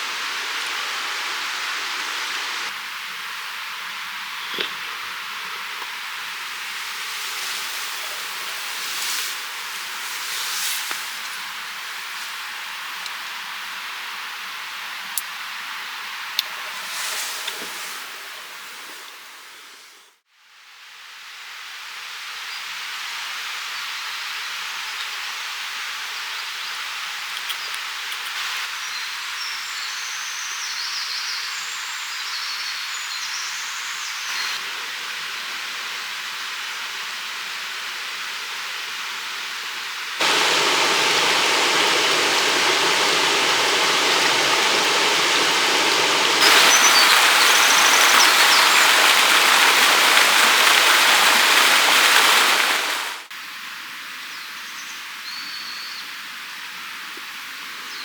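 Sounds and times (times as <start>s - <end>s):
stream water rushing: 0.0s - 4.2s, 5.1s - 15.0s, 40.2s - 53.3s
bird chirps: 40.2s - 49.4s.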